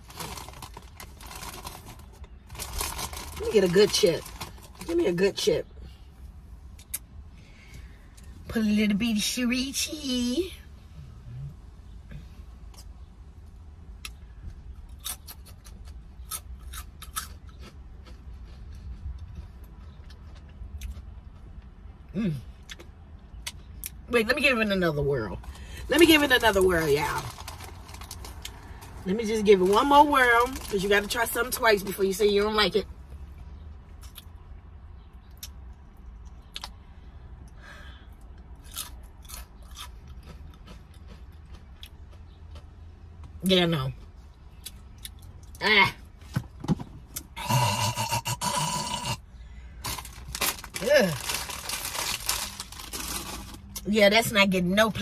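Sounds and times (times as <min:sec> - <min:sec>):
crunching chip: 0:00.0 - 0:05.0, 0:38.6 - 0:41.9, 0:49.8 - 0:53.8
low steady hum: 0:00.0 - 0:55.0
chewing: 0:38.7 - 0:42.7.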